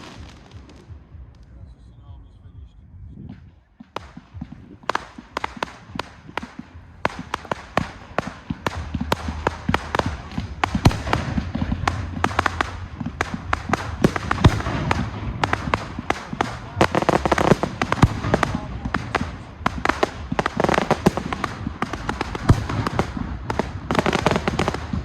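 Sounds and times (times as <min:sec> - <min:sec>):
fireworks bangs and crackling: 0:00.0 - 0:25.0.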